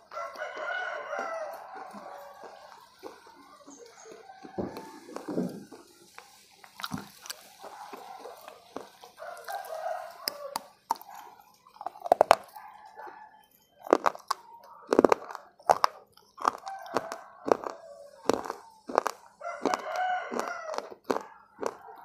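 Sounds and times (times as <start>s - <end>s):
person chewing with lip smacks: 0.0s - 3.5s, 4.1s - 12.7s, 13.8s - 22.0s
sharp mouth clicks: 13.9s - 21.8s.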